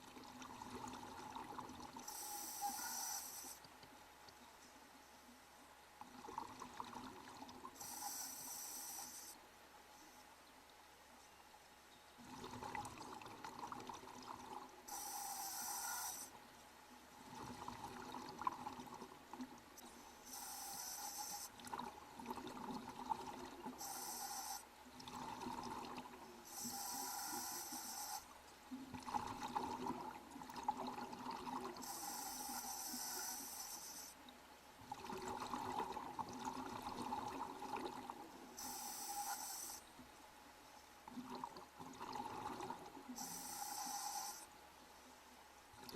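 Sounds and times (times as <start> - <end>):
hissing regulator inhalations: 2.0 - 3.6, 7.8 - 9.4, 14.9 - 16.3, 20.2 - 21.6, 23.8 - 24.7, 26.5 - 28.3, 31.8 - 34.2, 38.6 - 39.8, 43.2 - 44.5.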